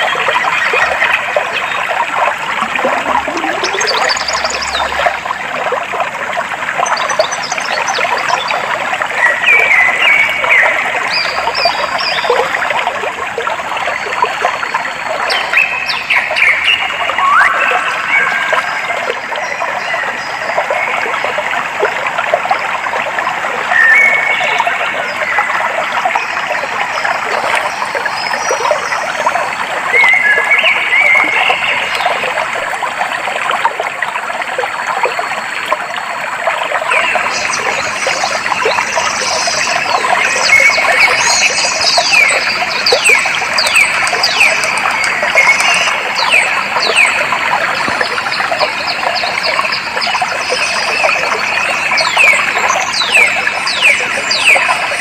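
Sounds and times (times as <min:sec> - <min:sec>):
stream water trickling: 0:00.0 - 0:55.0
bird quick falling notes: 0:02.6 - 0:04.9.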